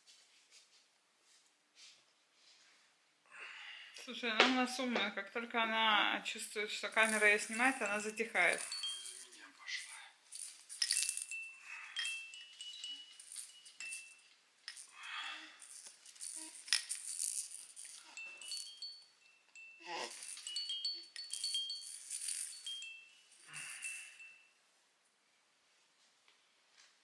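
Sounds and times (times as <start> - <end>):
baby rattle toy shaken: 6.4 - 24.3.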